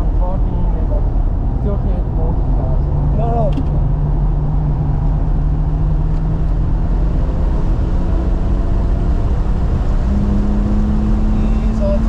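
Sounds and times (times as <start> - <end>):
car engine revving: 0.0 - 12.0
road and wind rumble: 0.0 - 12.0.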